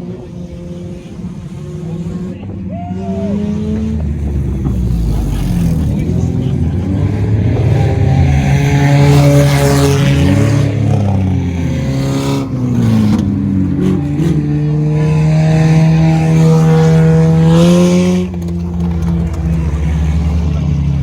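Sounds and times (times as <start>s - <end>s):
race car engines: 0.0s - 21.0s.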